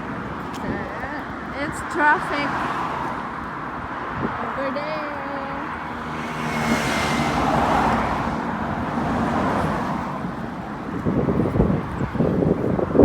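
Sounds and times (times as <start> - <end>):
road traffic: 0.0 - 13.0
vehicle passing by: 5.2 - 13.0.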